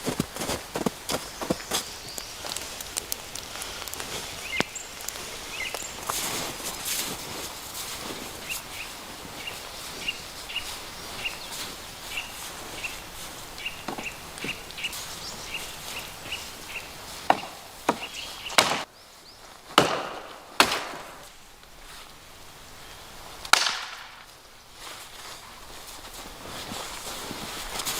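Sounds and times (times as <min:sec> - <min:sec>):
axe chopping wood: 0:17.2 - 0:18.9, 0:19.7 - 0:21.2, 0:23.5 - 0:24.2.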